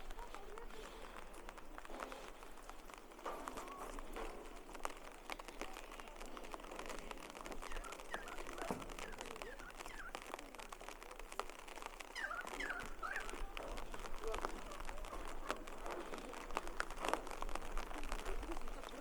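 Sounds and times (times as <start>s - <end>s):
light rain ticks and taps: 0.0s - 19.0s
short chirping calls: 7.6s - 10.4s, 12.0s - 13.5s.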